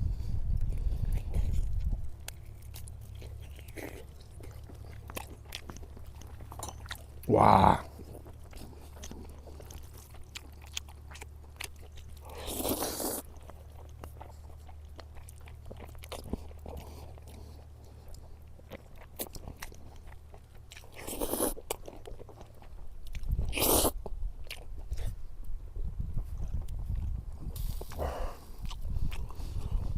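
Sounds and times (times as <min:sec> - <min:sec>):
person chewing: 0:00.0 - 0:29.9
steady low hum: 0:00.0 - 0:29.9.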